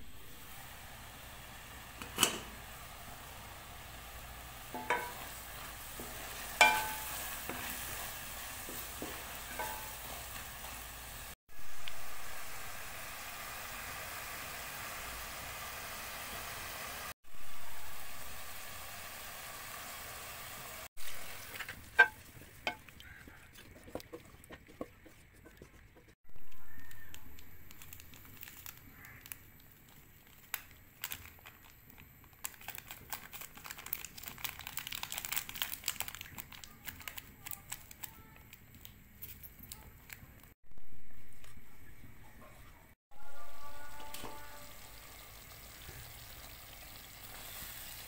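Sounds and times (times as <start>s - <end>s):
chicken sizzling in a pan: 0.0s - 23.9s, 43.3s - 48.0s
wooden spatula scraping a pan: 21.0s - 26.2s
clicks and crackles: 26.4s - 40.6s.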